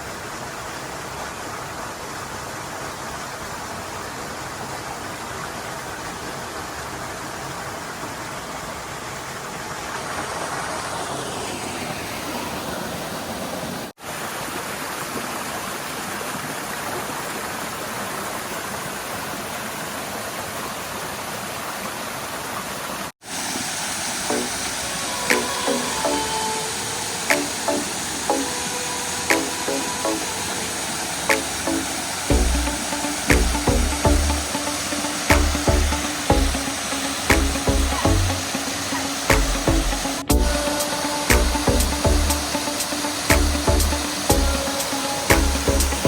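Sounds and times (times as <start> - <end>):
water rushing down a rocky stream: 0.0 - 46.0.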